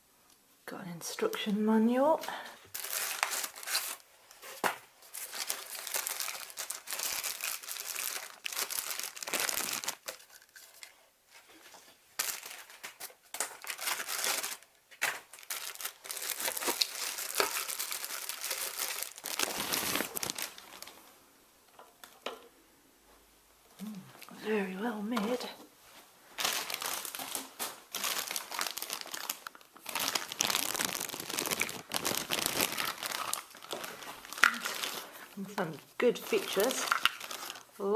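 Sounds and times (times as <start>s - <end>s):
packaging rustling: 2.7s - 21.0s, 26.4s - 35.2s, 36.2s - 37.7s.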